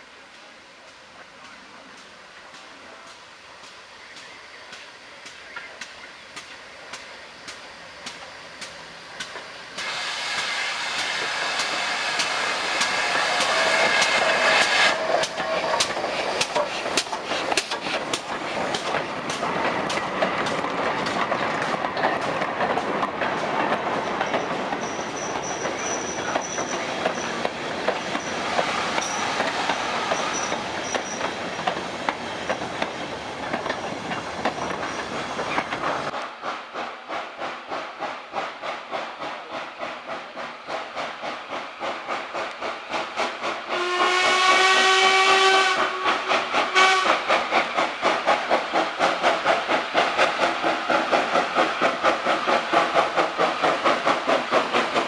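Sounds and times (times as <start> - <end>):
train wheels clacking on rails: 0.8 - 55.0
high wheel squeal: 24.3 - 27.4, 28.1 - 31.3.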